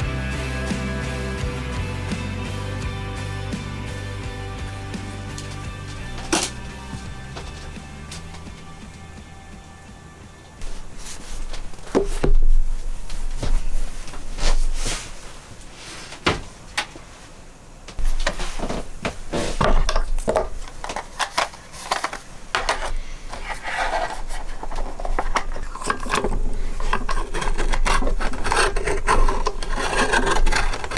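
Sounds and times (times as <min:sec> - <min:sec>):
scraping sound: 0:03.6 - 0:16.7
objects knocking and clattering: 0:03.6 - 0:30.9.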